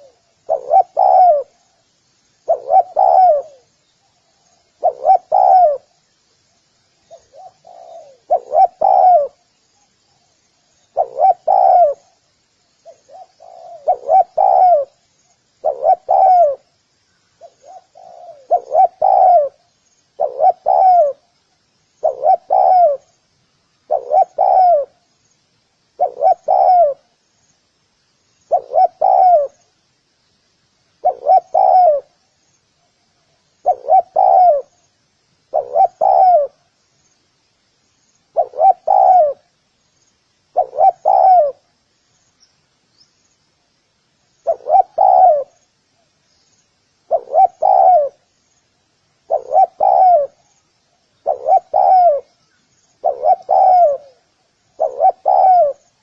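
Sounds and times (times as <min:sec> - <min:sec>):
dove cooing: 0:00.0 - 0:01.6, 0:02.4 - 0:03.7, 0:04.8 - 0:06.0, 0:07.1 - 0:09.4, 0:10.9 - 0:12.2, 0:12.8 - 0:15.0, 0:15.6 - 0:16.8, 0:17.4 - 0:19.6, 0:20.2 - 0:21.3, 0:22.0 - 0:23.1, 0:23.9 - 0:25.0, 0:26.0 - 0:27.1, 0:28.5 - 0:29.7, 0:31.0 - 0:32.2, 0:33.6 - 0:34.8, 0:35.5 - 0:36.6, 0:38.3 - 0:39.5, 0:40.5 - 0:41.7, 0:44.4 - 0:45.6, 0:47.0 - 0:48.3, 0:49.2 - 0:50.5, 0:51.2 - 0:52.4, 0:53.0 - 0:56.0.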